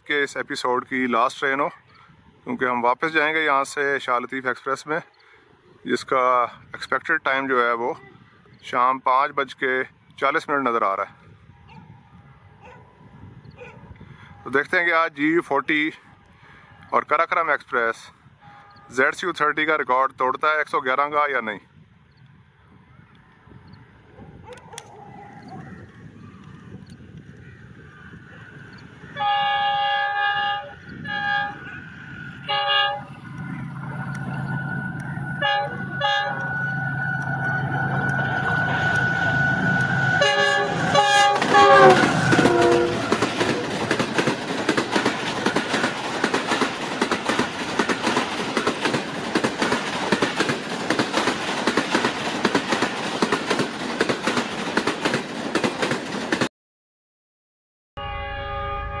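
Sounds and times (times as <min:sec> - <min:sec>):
locomotive multi-note horn: 0:18.4 - 0:19.1, 0:29.2 - 0:43.8, 0:58.0 - 0:59.0
locomotive engine rumble: 0:21.9 - 0:56.4
train wheel clatter: 0:36.1 - 0:56.5.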